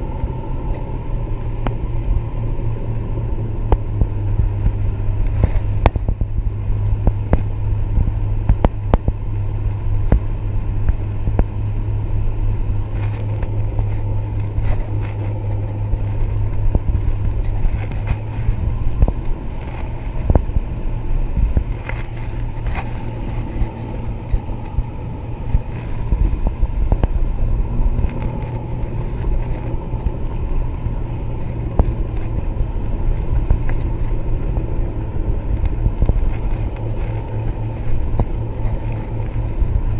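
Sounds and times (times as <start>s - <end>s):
outboard motor humming: 0.0s - 39.9s.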